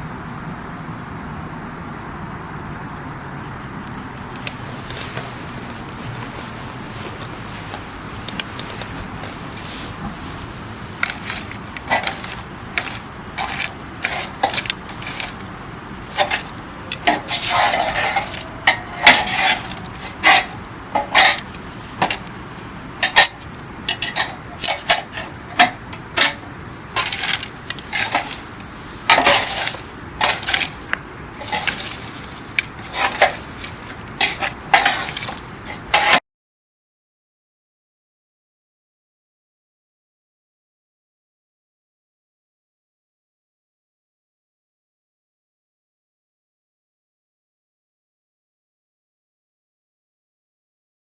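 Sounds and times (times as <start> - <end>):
campfire crackling: 4.1 - 36.1.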